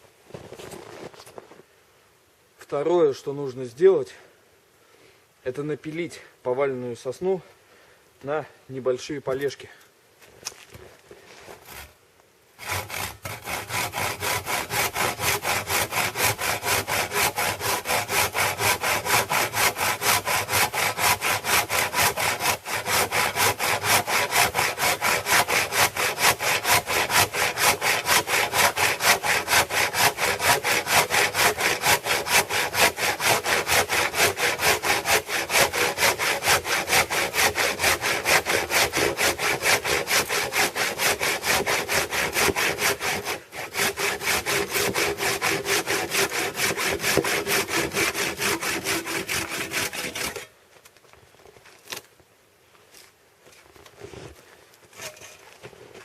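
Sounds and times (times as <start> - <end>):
hand saw cutting wood: 11.5 - 12.0, 12.6 - 50.5, 54.9 - 55.3.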